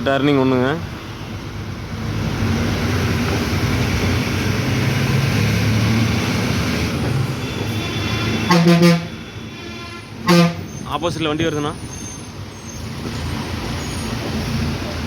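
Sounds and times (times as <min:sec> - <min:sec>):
truck horn blast: 0:07.3 - 0:10.8.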